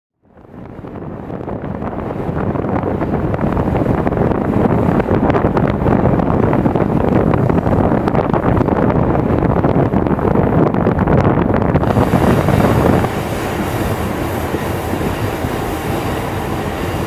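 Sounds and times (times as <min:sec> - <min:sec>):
wind buffeting microphone: 0:00.2 - 0:17.0
train wheels rumbling on rails: 0:11.8 - 0:17.0.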